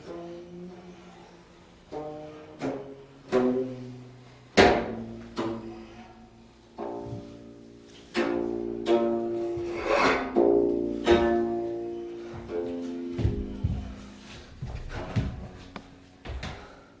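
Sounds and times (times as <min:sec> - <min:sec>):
plucked zither notes: 0:06.8 - 0:14.2.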